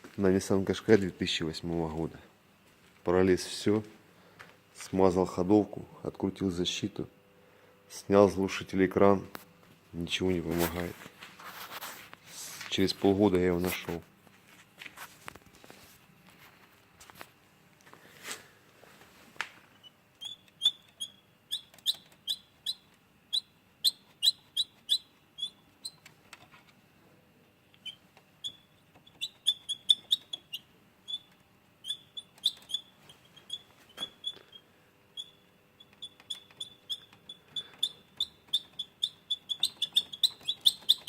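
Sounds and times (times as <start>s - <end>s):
faint rustling: 9.8s - 19.7s.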